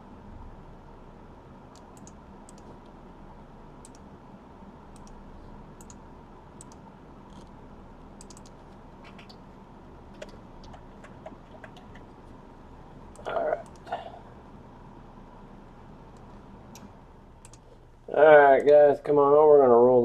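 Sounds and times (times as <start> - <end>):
faint electrical hum: 0.0 - 20.0
keyboard and mouse clicks: 1.7 - 2.9, 3.8 - 4.1, 4.9 - 5.2, 5.8 - 6.0, 6.6 - 7.5, 8.2 - 9.4, 10.1 - 12.2, 13.1 - 13.9, 16.1 - 17.7.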